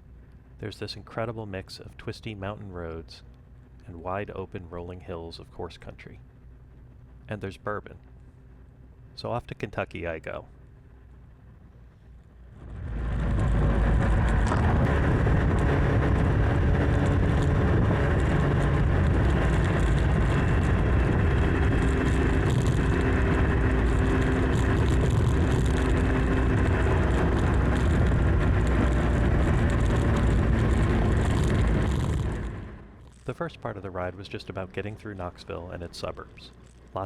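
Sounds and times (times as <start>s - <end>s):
motorcycle engine running: 12.4s - 33.2s
heavy wind noise: 12.5s - 32.9s.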